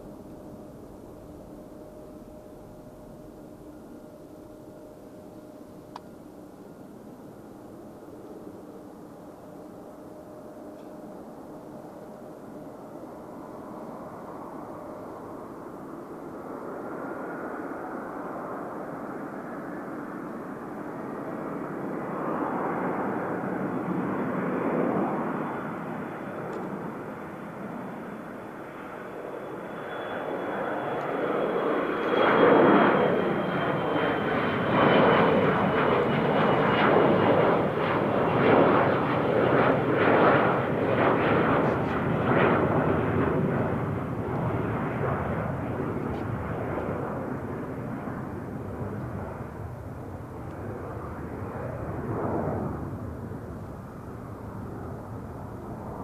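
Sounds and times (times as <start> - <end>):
jet engines roaring: 12.6 - 56.0.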